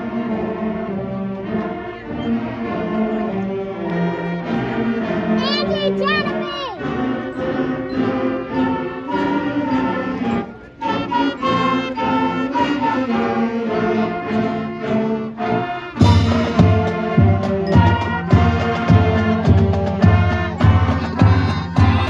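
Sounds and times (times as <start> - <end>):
marching band brass chords: 0.0 - 22.0
drums with strong regular beat: 16.0 - 22.0.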